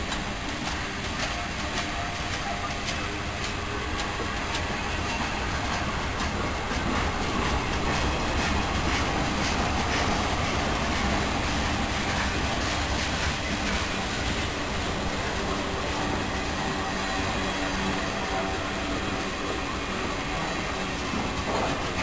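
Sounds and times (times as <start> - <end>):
freight train rumbling past: 0.0 - 22.0
wheels clicking over rail joints: 0.0 - 22.0.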